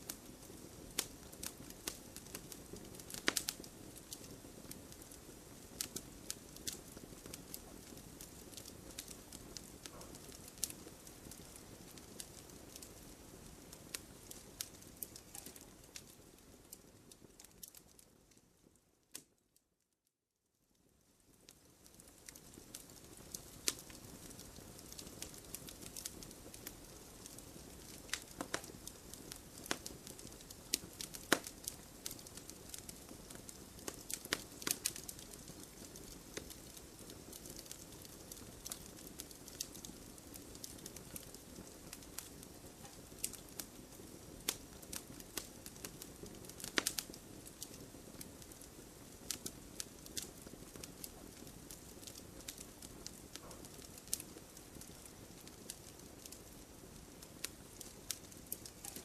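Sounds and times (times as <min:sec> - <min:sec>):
campfire crackling and popping: 0:00.0 - 0:19.4, 0:20.8 - 0:59.0
low steady hiss: 0:00.0 - 0:59.0.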